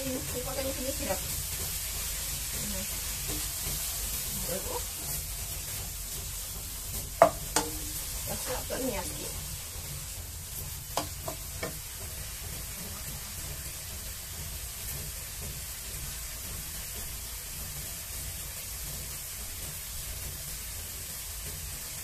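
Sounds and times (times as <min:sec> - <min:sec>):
rice sizzling in a wok: 0:00.0 - 0:22.0
wooden spatula knocking on wok: 0:06.6 - 0:09.4, 0:10.6 - 0:13.3.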